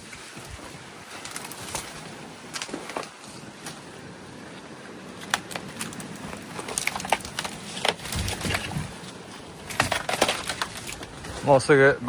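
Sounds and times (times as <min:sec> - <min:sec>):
light snaps and crackles: 0:01.1 - 0:03.8, 0:05.1 - 0:11.1.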